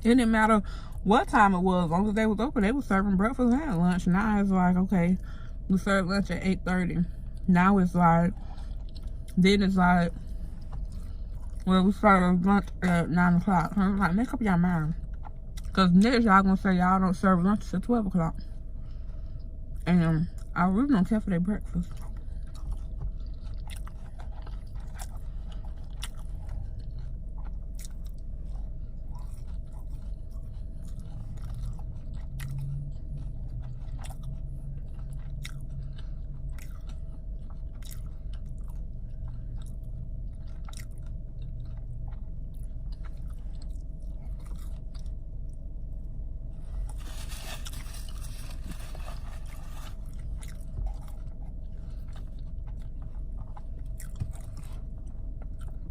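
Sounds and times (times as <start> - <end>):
steady low hum: 0.0 - 55.9
person chewing with mouth clicks: 21.9 - 45.6, 46.9 - 55.9.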